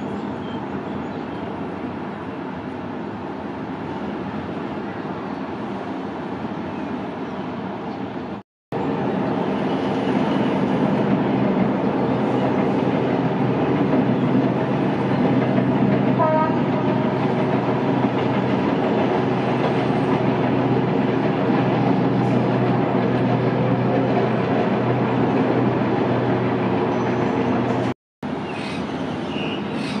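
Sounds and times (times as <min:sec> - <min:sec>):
train wheels rumbling on rails: 0:08.8 - 0:30.0.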